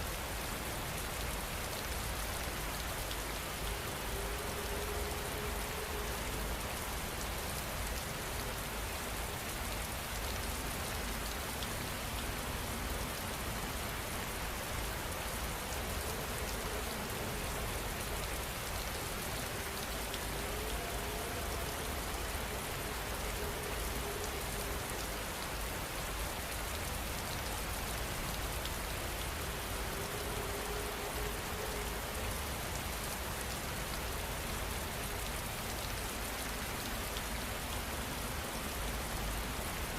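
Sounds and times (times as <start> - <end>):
steady rain on a surface: 0.0 - 39.9.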